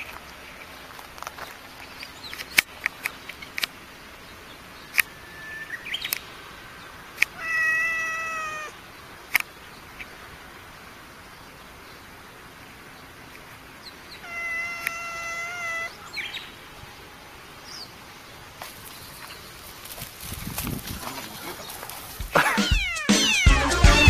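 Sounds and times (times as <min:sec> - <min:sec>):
sharp clicks: 0:04.9 - 0:05.1, 0:09.3 - 0:09.5
cat meowing: 0:07.4 - 0:08.8, 0:14.2 - 0:16.0, 0:22.5 - 0:24.0.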